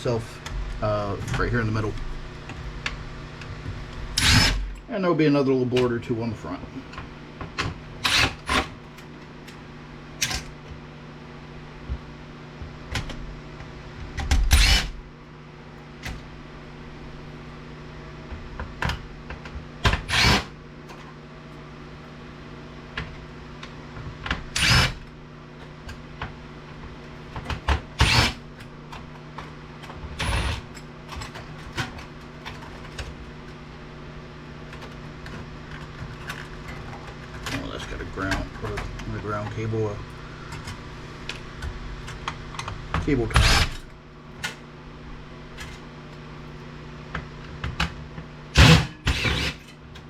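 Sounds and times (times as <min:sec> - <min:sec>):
background hum: 0:00.0 - 0:50.0
power screwdriver running: 0:04.2 - 0:04.6, 0:08.0 - 0:08.7, 0:14.5 - 0:15.0, 0:20.0 - 0:20.5, 0:24.6 - 0:25.0, 0:28.0 - 0:28.4, 0:43.4 - 0:43.8, 0:48.6 - 0:49.7.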